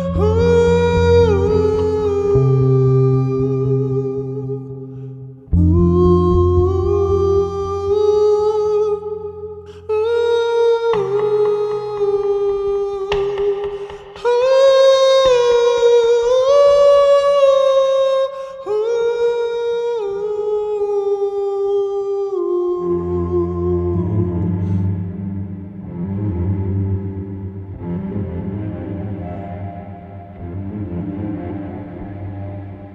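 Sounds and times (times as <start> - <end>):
low sustained drone: 28.1 - 32.9.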